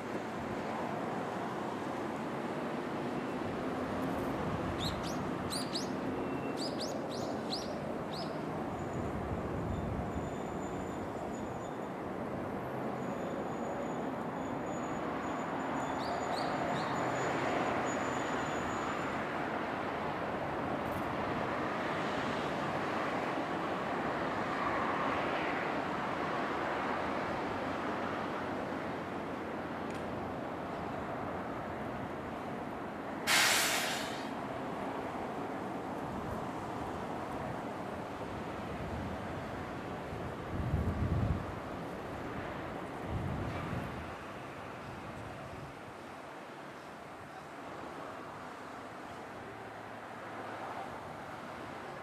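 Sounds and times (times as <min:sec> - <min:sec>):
small bird chirping: 0:04.8 - 0:08.4.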